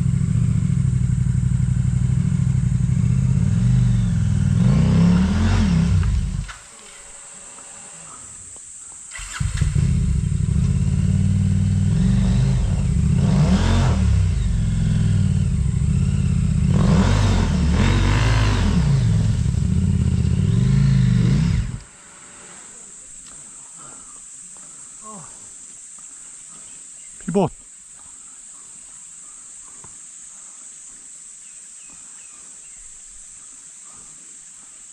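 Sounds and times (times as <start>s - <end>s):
off-road motorcycle engine revving: 0.0s - 23.2s.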